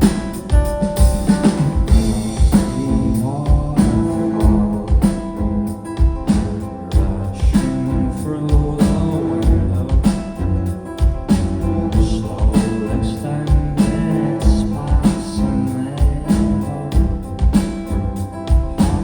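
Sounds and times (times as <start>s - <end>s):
kick drum beat: 0.0s - 6.4s, 7.0s - 10.4s, 11.0s - 11.4s, 17.0s - 19.0s
live rock band playing: 0.0s - 19.0s
person singing: 1.9s - 10.9s, 11.5s - 19.0s.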